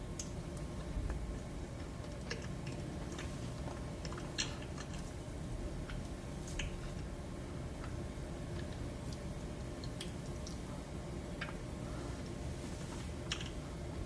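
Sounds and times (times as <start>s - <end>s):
soft chewing: 0.2s - 5.2s.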